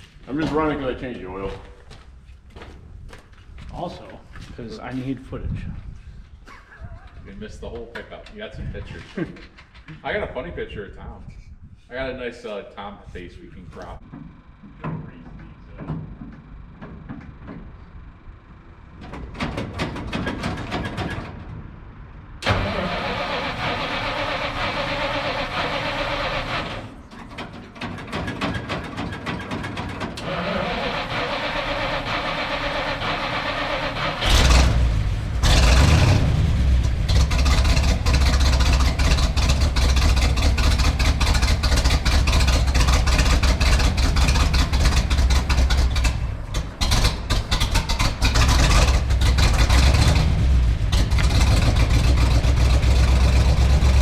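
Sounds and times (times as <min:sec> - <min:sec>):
truck engine running: 0:13.9 - 0:54.0.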